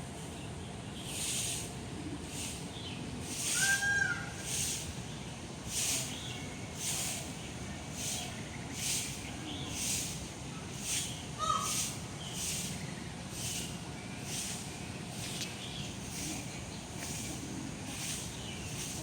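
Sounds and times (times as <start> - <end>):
owl hissing: 3.2 - 5.0
owl whistled call: 3.5 - 4.4.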